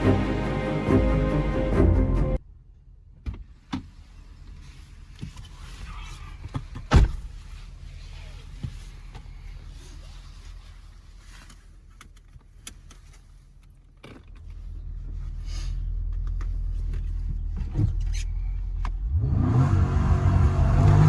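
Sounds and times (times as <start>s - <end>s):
car engine revving: 0.0s - 2.4s, 19.0s - 21.0s.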